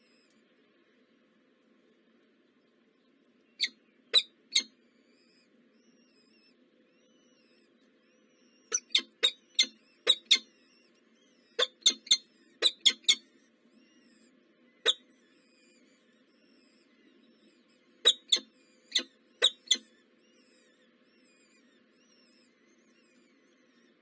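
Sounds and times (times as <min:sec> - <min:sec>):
faint songbirds singing: 0:00.0 - 0:24.0
birds chirping at a nest: 0:03.2 - 0:24.0.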